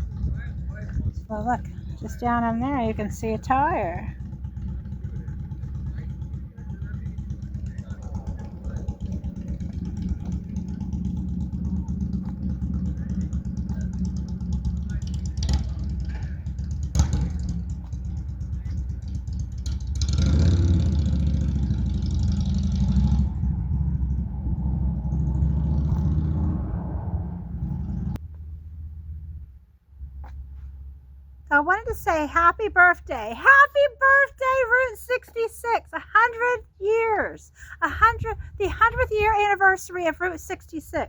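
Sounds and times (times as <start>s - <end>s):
vehicle passing: 0.0s - 31.4s
car engine running: 0.0s - 36.8s.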